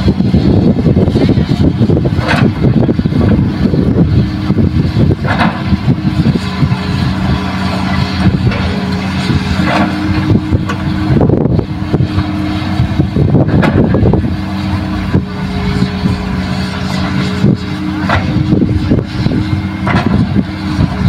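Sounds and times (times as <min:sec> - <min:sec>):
diesel machinery running: 0:00.0 - 0:21.0.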